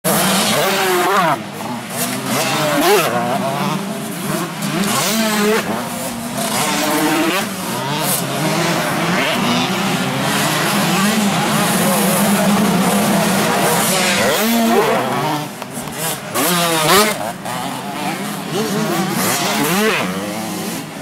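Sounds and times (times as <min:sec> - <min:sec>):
motocross bike engines revving: 0:00.0 - 0:21.0
drone of distant bikes: 0:00.1 - 0:21.0.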